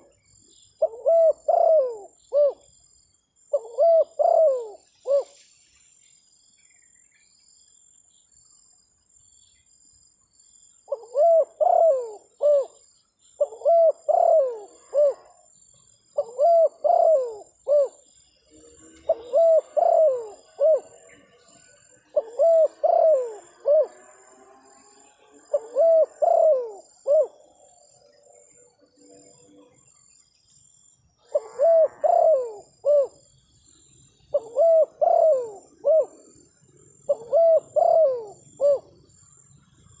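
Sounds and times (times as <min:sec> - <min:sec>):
dove cooing: 0:00.8 - 0:02.7, 0:03.5 - 0:05.4, 0:10.9 - 0:12.8, 0:13.4 - 0:15.5, 0:16.2 - 0:18.1, 0:18.8 - 0:27.8, 0:31.2 - 0:33.3, 0:34.3 - 0:39.0.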